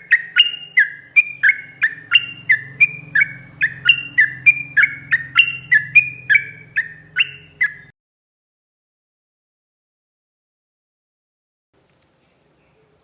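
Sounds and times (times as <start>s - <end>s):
bird singing fast liquid notes: 0.0s - 7.9s.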